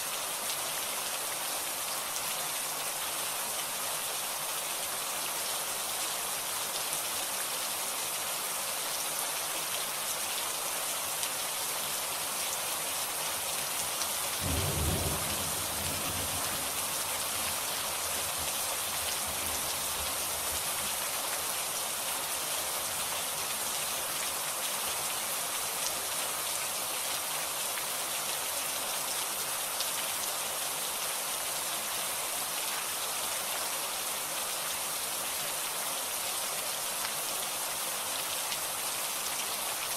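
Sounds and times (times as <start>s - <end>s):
heavy rain falling: 0.0s - 39.9s
low thunder rumble: 14.4s - 16.9s.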